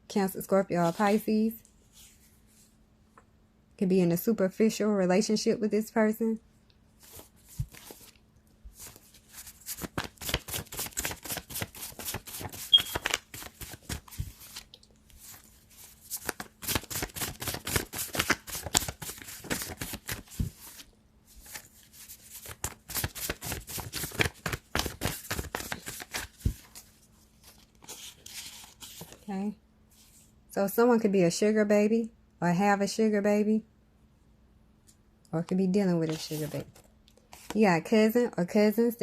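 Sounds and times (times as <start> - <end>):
cards being shuffled by hand: 7.0 - 29.3, 36.0 - 37.6.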